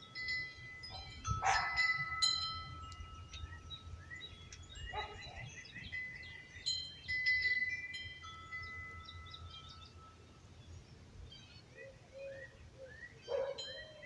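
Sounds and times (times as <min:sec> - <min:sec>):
wind chimes ringing: 0:00.0 - 0:11.2, 0:13.3 - 0:14.0
birds chirping: 0:00.0 - 0:14.0
low rumble of wind: 0:00.0 - 0:14.0.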